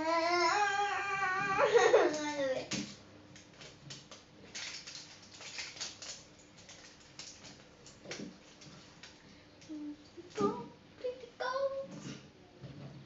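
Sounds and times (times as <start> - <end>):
plastic crackles: 1.6 - 9.7
plastic packaging crinkling: 1.9 - 9.1.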